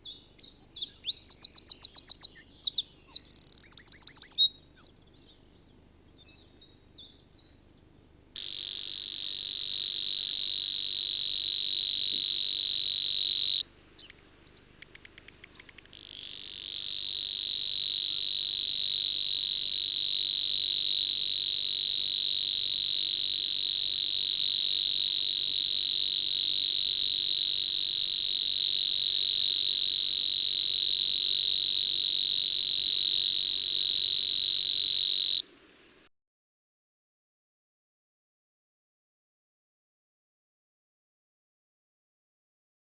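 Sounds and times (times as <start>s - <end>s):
short bird chirps: 0.0s - 5.0s
high-pitched animal buzzing call: 8.4s - 13.6s, 15.9s - 35.4s.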